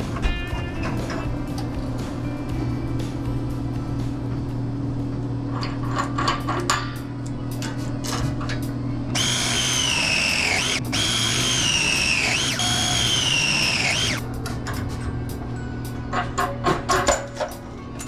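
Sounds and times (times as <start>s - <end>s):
music with high wavering tones: 0.0s - 5.9s.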